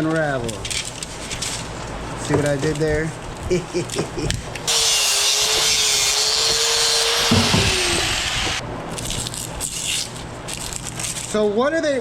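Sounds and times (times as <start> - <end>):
handling noises: 0.0 - 4.7
power tool motor whining: 4.7 - 8.6.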